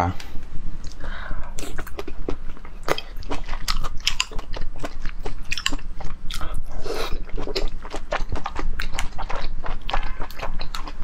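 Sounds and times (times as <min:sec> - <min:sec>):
wet chewing clicks and smacks: 0:01.6 - 0:11.0.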